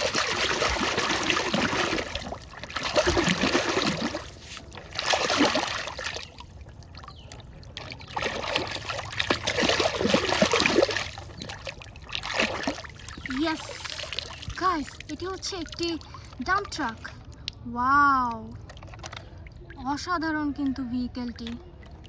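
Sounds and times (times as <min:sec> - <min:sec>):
water splashing and trickling: 0:00.0 - 0:22.0.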